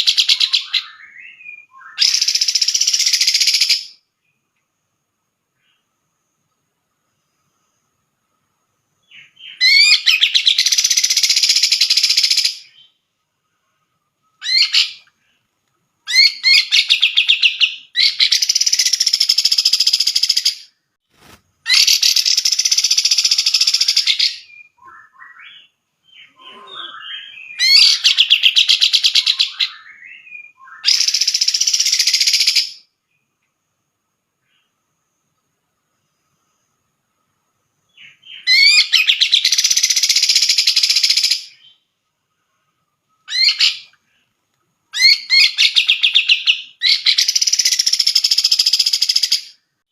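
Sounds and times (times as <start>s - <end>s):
bird singing warbling phrases: 0.0s - 4.0s, 9.0s - 13.0s, 14.3s - 15.4s, 16.0s - 20.8s, 21.7s - 32.9s, 37.9s - 41.9s, 43.1s - 44.2s, 44.9s - 49.6s
soft bird calls: 9.0s - 33.4s, 37.9s - 49.6s.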